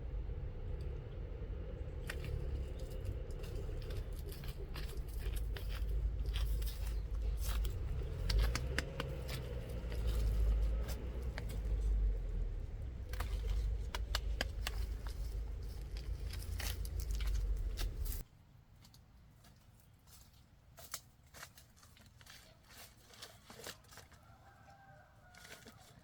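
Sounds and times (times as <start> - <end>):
low rumble: 0.0 - 18.2
rustling: 1.8 - 26.0.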